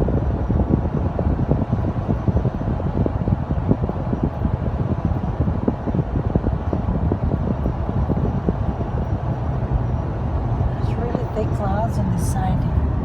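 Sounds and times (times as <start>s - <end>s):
low buffeting thumps: 0.0s - 13.0s
road and wind rumble in car: 0.0s - 13.0s.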